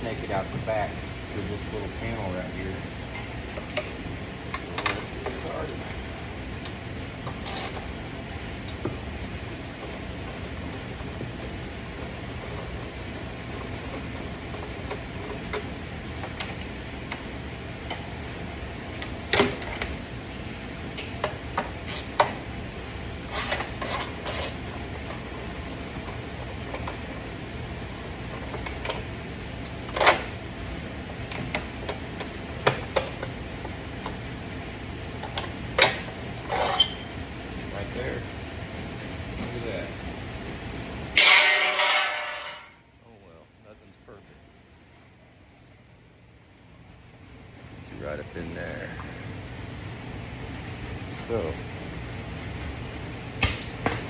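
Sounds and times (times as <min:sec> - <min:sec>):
steady low hum: 0:00.0 - 0:54.0
metal clanks: 0:41.2 - 0:42.7.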